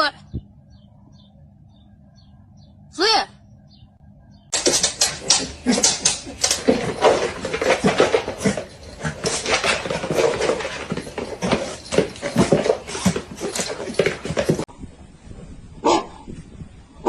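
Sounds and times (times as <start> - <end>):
short clattering knocks: 4.6 - 14.7.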